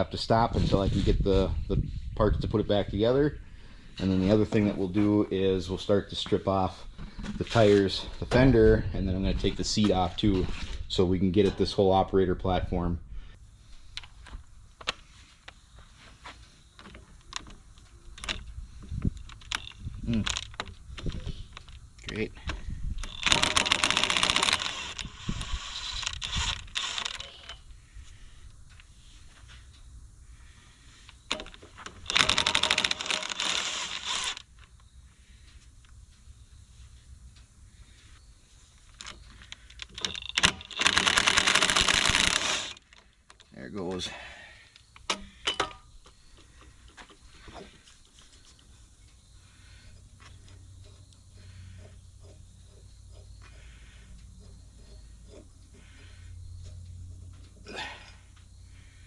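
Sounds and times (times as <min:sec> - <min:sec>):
ratchet wrench clicking: 0:23.0 - 0:27.6, 0:31.3 - 0:34.5, 0:39.0 - 0:43.0
metal parts clinking: 0:23.0 - 0:27.7, 0:31.3 - 0:34.7, 0:38.9 - 0:43.5.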